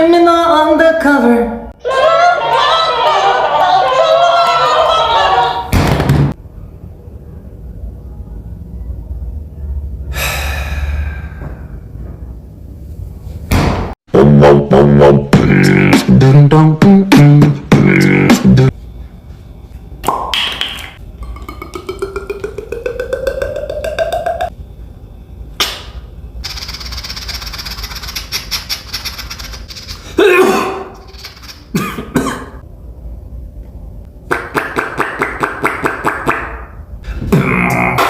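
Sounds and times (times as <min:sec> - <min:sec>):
person beatboxing: 0:14.2 - 0:18.7, 0:21.2 - 0:24.5, 0:34.3 - 0:36.6, 0:37.2 - 0:38.0.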